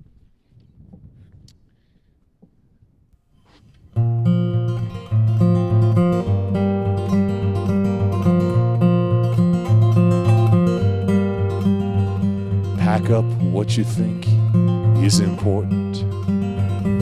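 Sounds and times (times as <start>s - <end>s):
acoustic guitar strumming: 4.0s - 17.0s.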